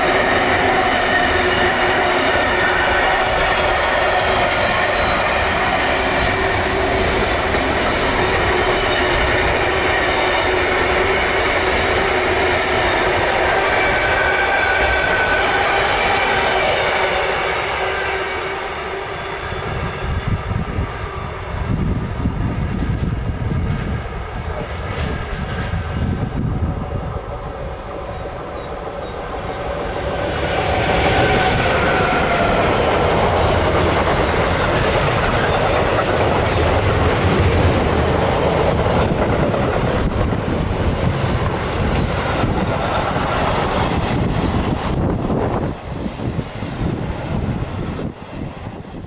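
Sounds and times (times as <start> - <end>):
train wheels clattering on rails: 0.0 - 18.0, 28.4 - 48.2
train rushing past at speed: 0.0 - 49.0.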